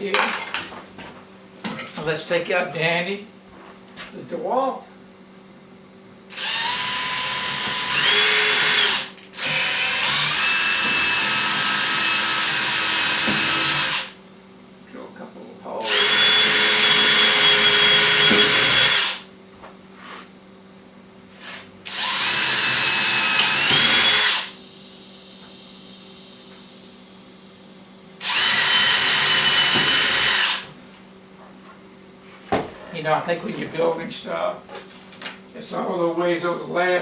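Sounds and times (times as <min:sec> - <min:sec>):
drill drilling into wood: 0:06.3 - 0:14.2, 0:15.8 - 0:19.2, 0:21.9 - 0:24.6, 0:28.2 - 0:30.7.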